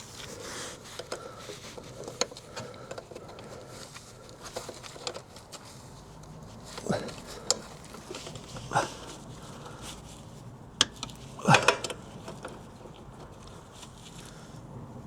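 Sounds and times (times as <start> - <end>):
man grunting with effort: 6.8 - 7.2, 11.4 - 11.9.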